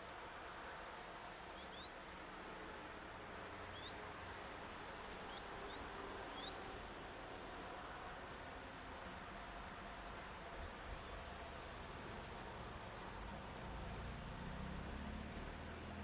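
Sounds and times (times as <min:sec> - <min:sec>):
small bird chirping faintly: 0:00.0 - 0:02.2, 0:03.6 - 0:06.8, 0:09.6 - 0:16.0
steady hiss: 0:00.0 - 0:16.0.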